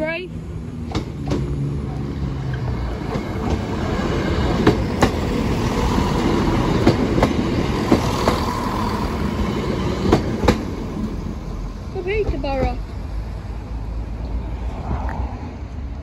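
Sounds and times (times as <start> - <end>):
train wheels rumbling on rail: 0.0 - 16.0
wheels clicking over rail joints: 11.9 - 12.9.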